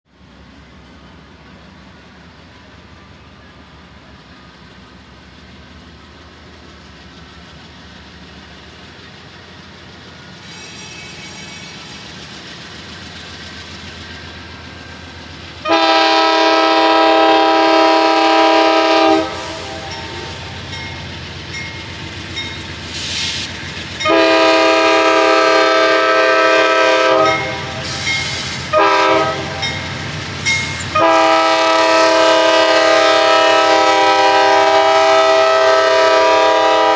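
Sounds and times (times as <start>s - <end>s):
train rumble: 0.1s - 36.9s
locomotive air horn: 15.6s - 20.6s, 24.0s - 29.8s, 30.6s - 36.9s.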